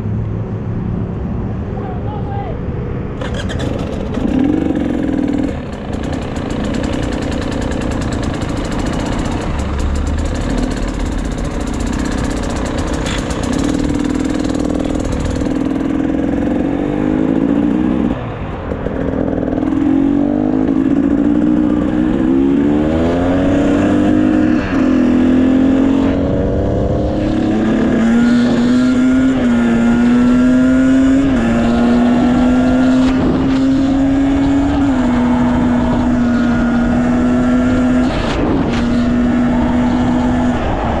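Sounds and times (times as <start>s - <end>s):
motorcycle engine accelerating: 3.1s - 41.0s.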